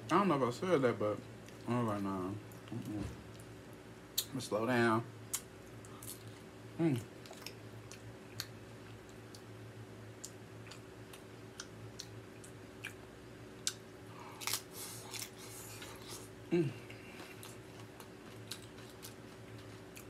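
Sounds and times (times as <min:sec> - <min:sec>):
steady low hum: 0:00.0 - 0:20.0
chips crunching and chewing: 0:13.6 - 0:16.4, 0:17.1 - 0:20.0.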